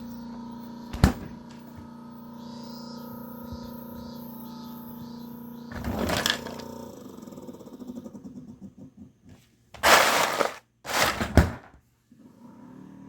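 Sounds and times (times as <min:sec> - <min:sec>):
refrigerator hum: 0:00.0 - 0:13.0
refrigerator rattle: 0:09.8 - 0:11.7.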